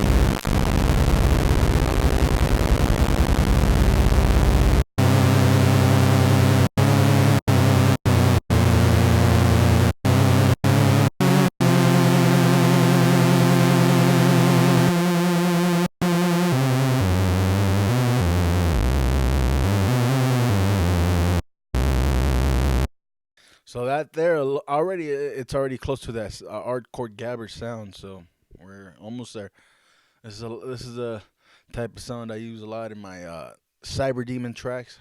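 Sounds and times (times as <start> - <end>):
buzzy square-wave synth lead: 0.0 - 22.9.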